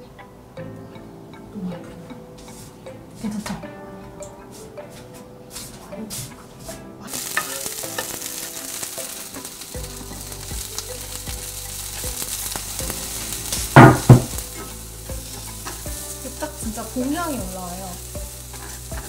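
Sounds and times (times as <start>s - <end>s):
food sizzling in a frying pan: 7.1s - 19.0s
loud knocks: 13.8s - 14.4s.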